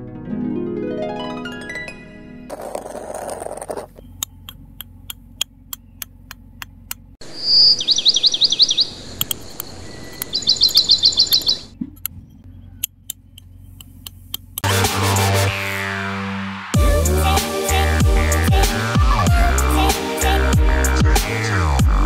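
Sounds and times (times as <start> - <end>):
sharp clicks: 4.0 - 7.1, 9.2 - 10.4
small bird trilling: 7.2 - 11.7.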